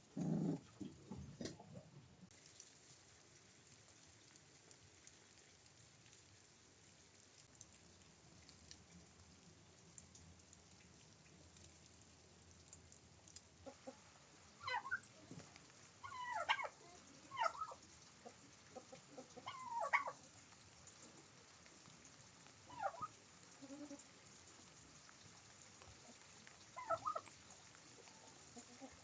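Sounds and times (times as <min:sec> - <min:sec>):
faint hiss of rain: 0:00.0 - 0:29.0
chickens clucking: 0:16.0 - 0:20.2, 0:22.7 - 0:24.0, 0:26.8 - 0:27.3.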